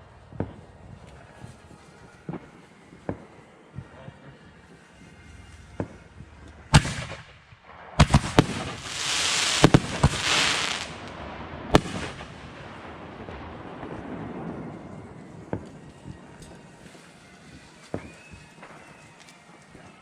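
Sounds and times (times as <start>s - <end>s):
fireworks bangs: 6.7s - 15.8s
fireworks hissing crackle: 8.0s - 11.2s, 11.8s - 12.8s.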